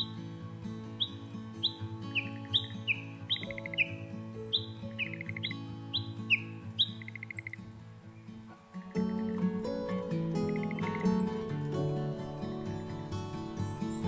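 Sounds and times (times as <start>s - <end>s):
soft background music: 0.0s - 14.0s
rattling trills: 8.4s - 14.0s.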